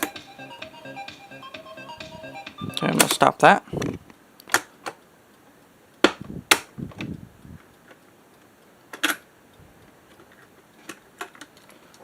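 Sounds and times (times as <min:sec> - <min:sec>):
cassette deck clicks and clunks: 0:04.4 - 0:05.0.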